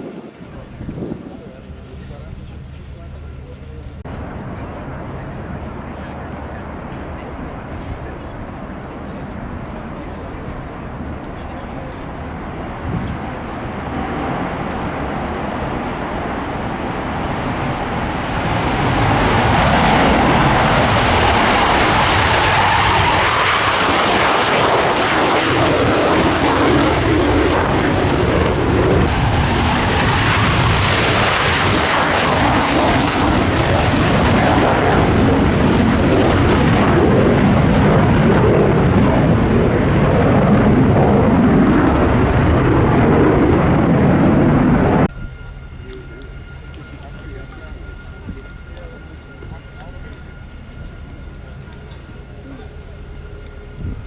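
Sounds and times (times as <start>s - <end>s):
jet engines roaring: 0.0s - 54.0s
faint rising whine: 1.0s - 54.0s.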